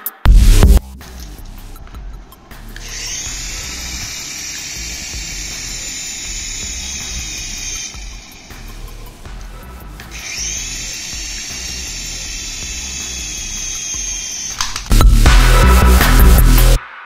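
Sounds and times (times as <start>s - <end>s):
loud electronic music: 0.0s - 1.8s, 2.5s - 17.0s
small electric motor whine: 2.8s - 14.7s.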